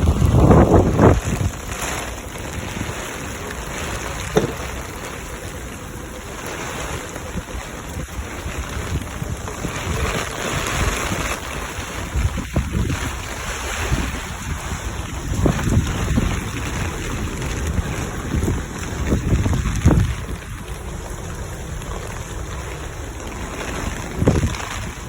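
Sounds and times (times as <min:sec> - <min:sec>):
heavy rain: 0:00.0 - 0:25.0
wind buffeting microphone: 0:00.0 - 0:25.0
brief knock: 0:04.4 - 0:04.7.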